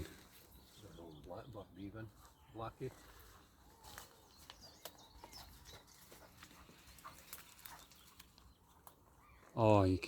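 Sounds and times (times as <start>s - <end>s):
light rustling of twigs: 0.0s - 9.7s.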